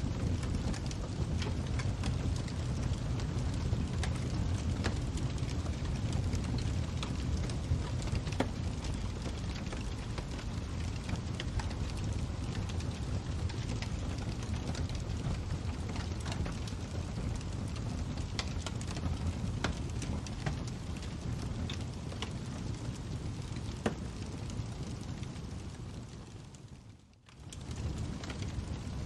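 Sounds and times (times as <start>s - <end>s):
steady low rumble: 0.0s - 26.8s
fire crackling and popping: 0.0s - 29.0s.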